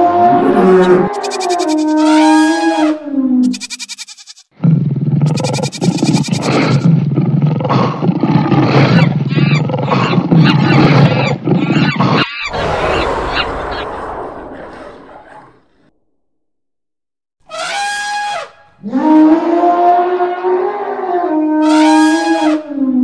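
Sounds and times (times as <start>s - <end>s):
cartoon lion roaring and growling: 0.0s - 3.4s, 4.6s - 15.9s
animal call falling in pitch: 12.4s - 15.5s.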